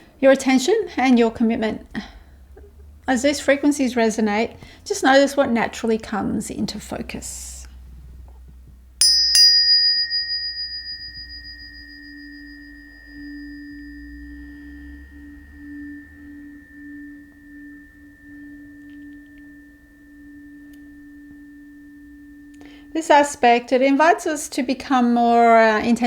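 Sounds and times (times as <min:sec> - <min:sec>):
steady low tone: 0:07.6 - 0:25.8
clear higher tone: 0:09.0 - 0:23.0
high bright ring: 0:09.0 - 0:23.3
tuning forks struck: 0:09.0 - 0:24.1.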